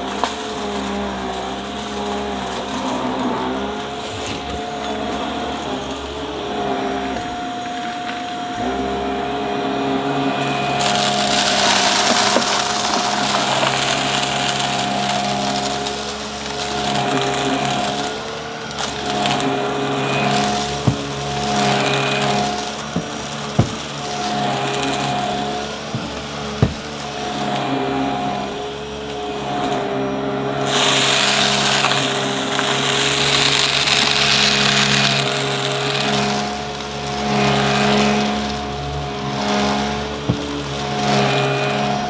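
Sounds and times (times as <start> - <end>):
vacuum cleaner running: 0.0 - 42.0
vacuum picking up debris: 10.4 - 28.0, 30.7 - 42.0.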